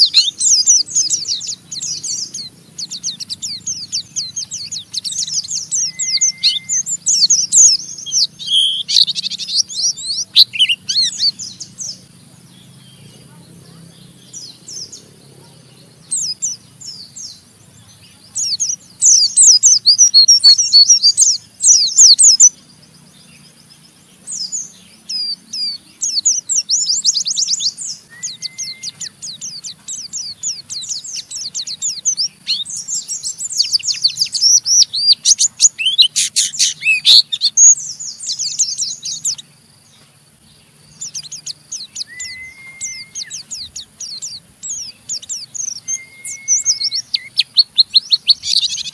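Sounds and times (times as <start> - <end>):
low bird whistles: 0.0 - 11.4, 26.8 - 29.6, 41.8 - 44.2, 44.8 - 48.9
bird chattering song: 0.0 - 48.9.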